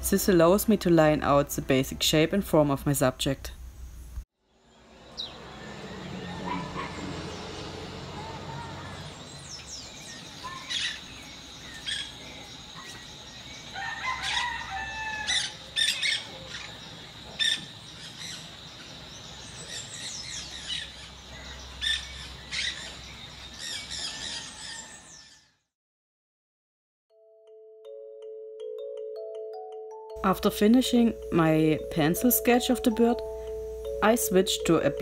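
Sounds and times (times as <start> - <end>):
wild birds chirping and calling: 4.6 - 25.6
steady high tone: 27.9 - 35.0.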